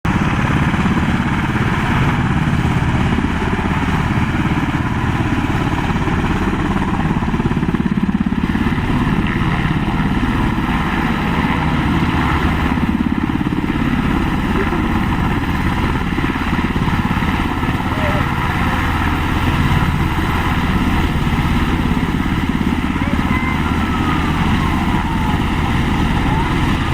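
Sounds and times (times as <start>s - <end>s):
helicopter engine noise: 0.0s - 26.9s
helicopter rotor chop: 0.1s - 26.9s.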